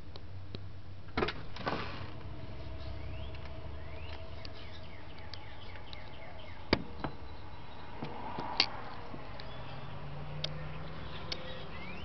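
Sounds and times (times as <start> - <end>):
steady low hum: 0.0 - 8.0
small birds chirping: 2.4 - 12.0.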